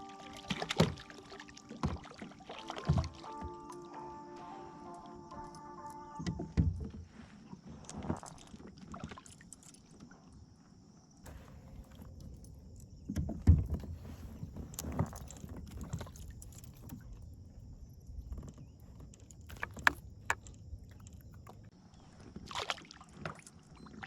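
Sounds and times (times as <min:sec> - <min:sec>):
fishing gear clicks and rattles: 0:11.3 - 0:21.7.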